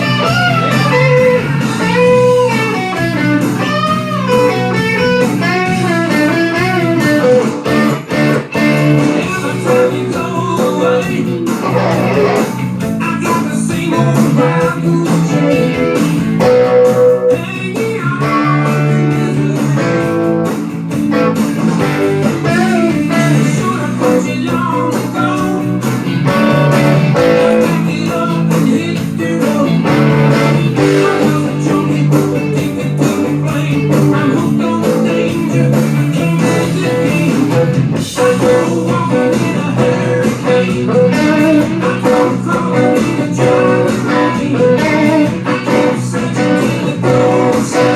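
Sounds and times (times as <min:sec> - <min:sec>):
bass: 0:00.0 - 0:47.9
drums: 0:00.0 - 0:47.9
electric guitar playing: 0:00.0 - 0:47.9.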